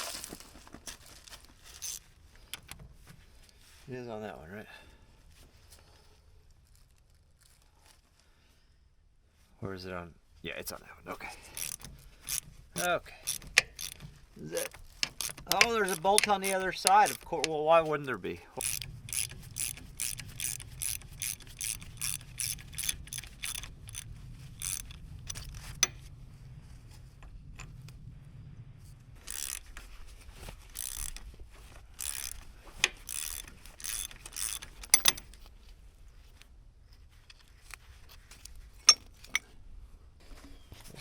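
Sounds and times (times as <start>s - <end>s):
ratchet wrench clicking: 1.8s - 2.8s, 11.4s - 17.5s, 18.6s - 26.0s, 29.2s - 29.9s, 30.7s - 31.3s, 31.9s - 35.4s
metal clanks: 38.8s - 39.5s.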